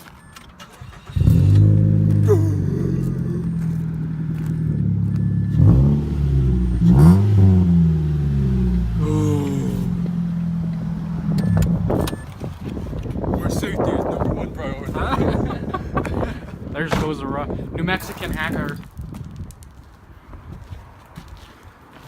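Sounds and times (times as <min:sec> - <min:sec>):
car engine starting and revving: 0:00.2 - 0:12.6.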